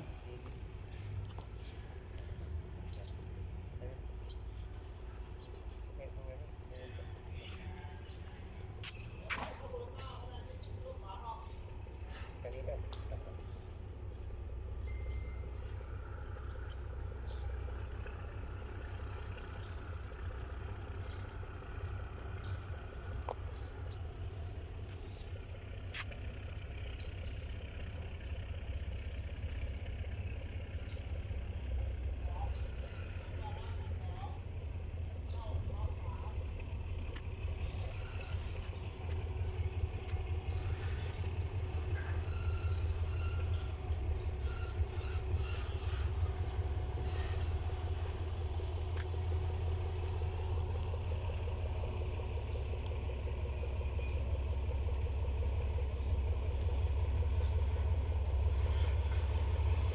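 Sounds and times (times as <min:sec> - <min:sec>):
diesel engine idling: 0:00.0 - 0:59.9
faint high squeaks: 0:32.7 - 0:34.0, 0:41.9 - 0:46.3.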